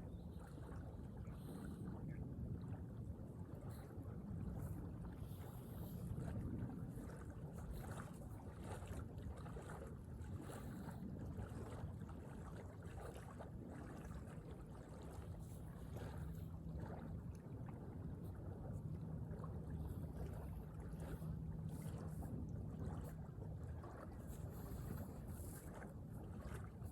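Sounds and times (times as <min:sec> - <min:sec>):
wind on microphone: 0:00.0 - 0:14.2
faint low hum: 0:00.0 - 0:26.9.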